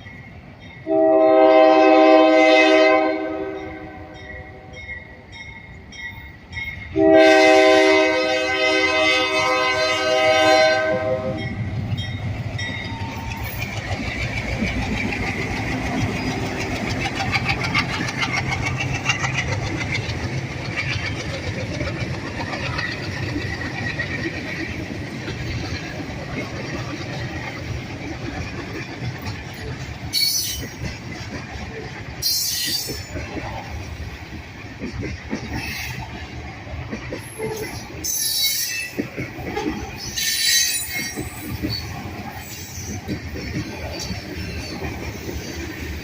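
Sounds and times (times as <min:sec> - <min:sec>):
train rumbling past: 0:00.0 - 0:46.0
train horn: 0:00.8 - 0:04.8, 0:06.9 - 0:11.6
wheels clicking over rail joints: 0:10.8 - 0:46.0.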